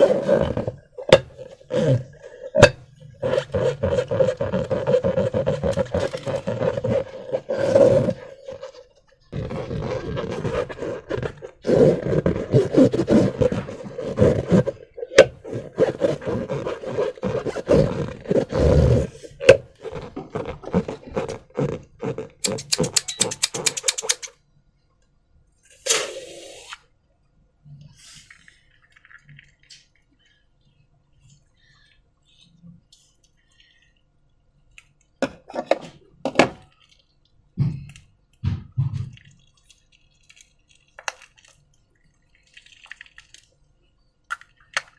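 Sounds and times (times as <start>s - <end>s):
slime squelching and popping: 36.6s - 43.7s, 44.3s - 44.9s.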